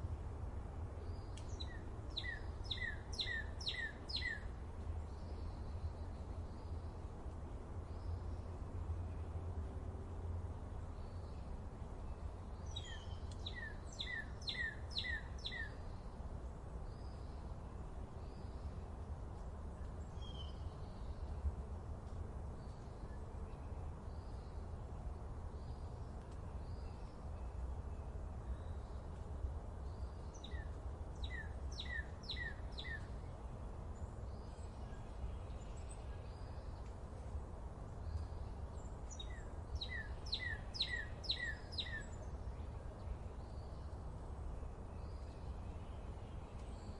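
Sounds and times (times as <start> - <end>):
bird whistling downward notes: 12.8 - 15.7, 39.8 - 42.1.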